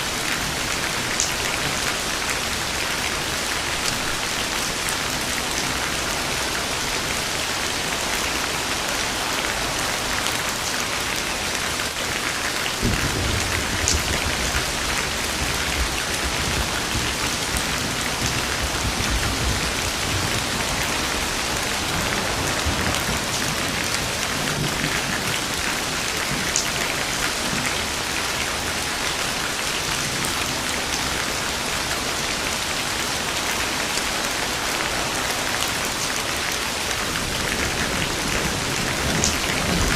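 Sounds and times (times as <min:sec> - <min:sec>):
rain falling: 0:00.0 - 0:39.9
thunder rumbling: 0:12.3 - 0:36.0, 0:37.0 - 0:39.9.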